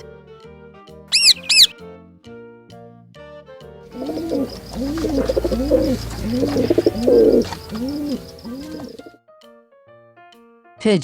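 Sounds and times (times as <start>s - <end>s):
faint background noise: 3.9s - 9.1s
pigeon cooing: 3.9s - 9.1s.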